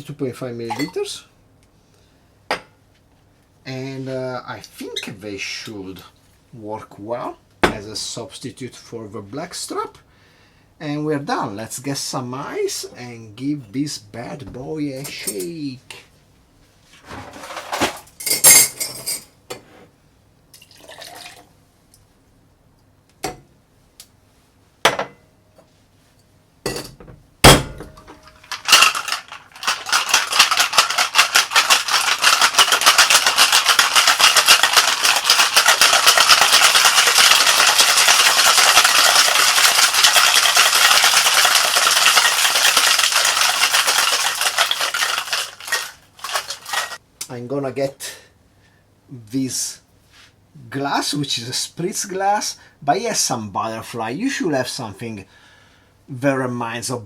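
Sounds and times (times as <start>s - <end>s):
ice clinking into shaker: 28.0s - 47.0s
ice rattling in shaker: 28.2s - 47.0s.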